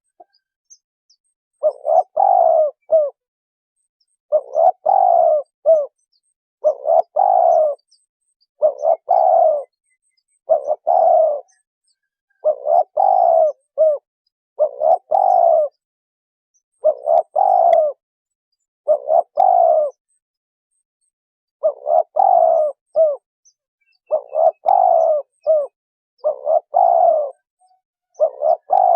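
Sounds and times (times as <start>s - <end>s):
dove cooing: 1.6s - 3.3s, 4.3s - 6.0s, 6.6s - 8.0s, 8.6s - 9.8s, 10.4s - 15.8s, 16.8s - 18.0s, 18.9s - 20.0s, 21.6s - 23.2s, 24.0s - 28.9s.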